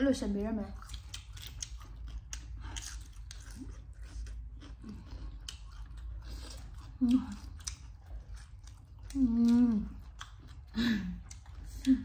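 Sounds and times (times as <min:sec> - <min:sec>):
biting and chewing food: 0:00.1 - 0:12.0.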